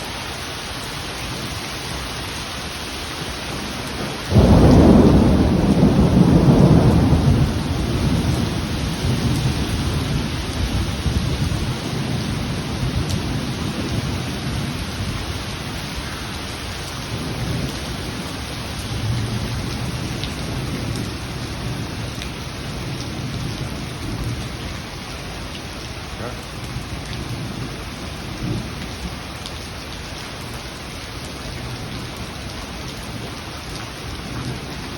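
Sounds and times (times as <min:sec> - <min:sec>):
steady rain falling: 0:00.0 - 0:34.9
thunderclap rolling rumble: 0:03.6 - 0:16.1, 0:17.1 - 0:29.2.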